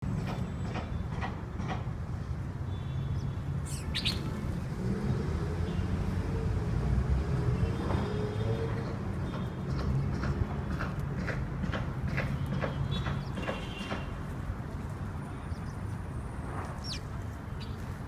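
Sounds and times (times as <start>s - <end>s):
small birds chirping: 3.1s - 4.4s, 15.4s - 16.0s, 16.7s - 18.0s.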